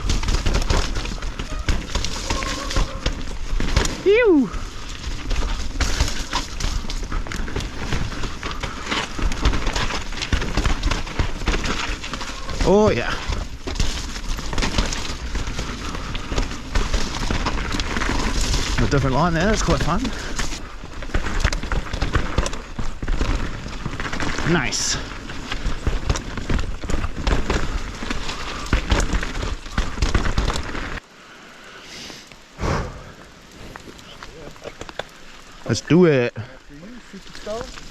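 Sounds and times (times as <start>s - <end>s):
bike rattling over roots: 0.0s - 31.1s, 33.3s - 37.9s
tyres hissing on wet ground: 31.0s - 37.9s.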